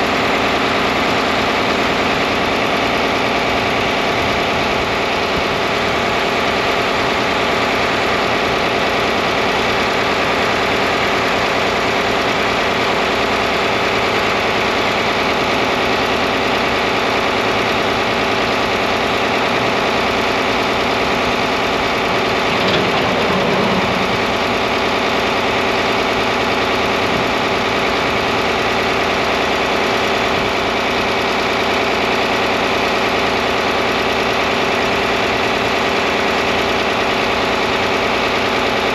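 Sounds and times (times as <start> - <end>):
tractor engine idling: 0.0 - 38.9
brief clatter: 22.2 - 24.5.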